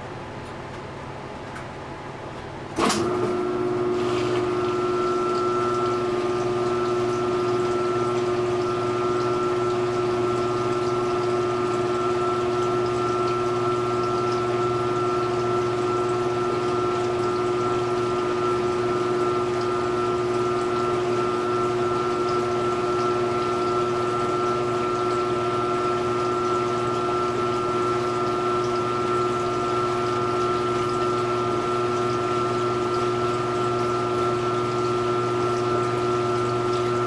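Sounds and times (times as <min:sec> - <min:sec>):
washing machine motor hum: 0:00.0 - 0:37.0
washer motor switch click: 0:02.7 - 0:05.8
water rushing through machine: 0:02.8 - 0:37.0.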